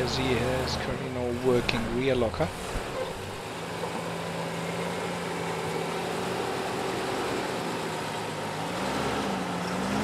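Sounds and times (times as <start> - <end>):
off-road vehicle engine running: 0.0 - 10.0.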